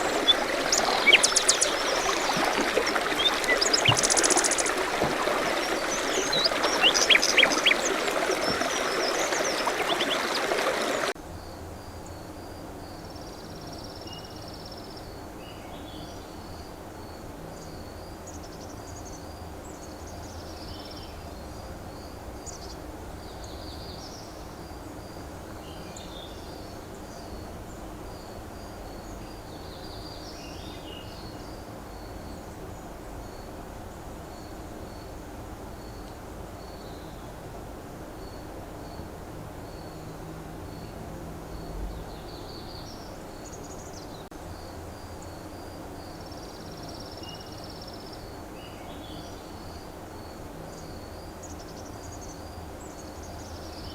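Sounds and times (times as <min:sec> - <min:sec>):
birds chirping: 0:00.0 - 0:11.2
running water: 0:00.0 - 0:11.2.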